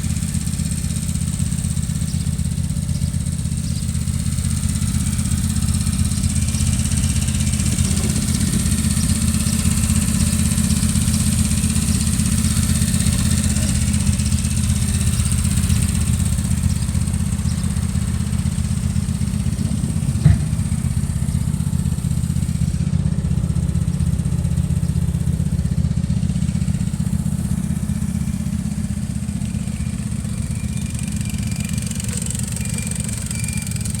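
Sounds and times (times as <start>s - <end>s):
mower engine running: 0.0s - 34.0s
sharp knock: 20.2s - 20.7s.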